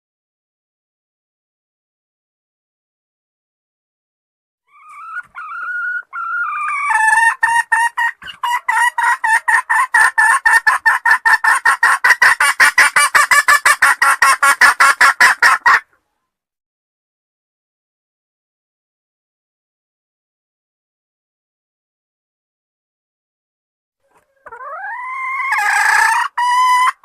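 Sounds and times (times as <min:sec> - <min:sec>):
sharp clucks: 0:04.7 - 0:16.0, 0:24.0 - 0:27.0.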